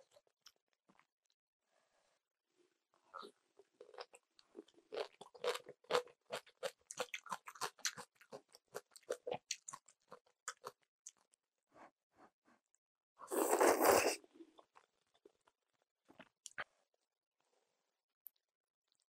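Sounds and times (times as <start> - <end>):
crunchy chewing: 3.2 - 11.3.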